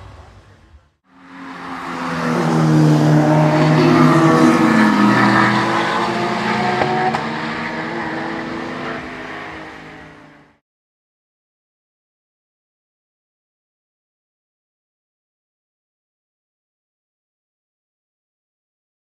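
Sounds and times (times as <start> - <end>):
race car passing at speed: 0.2 - 10.6.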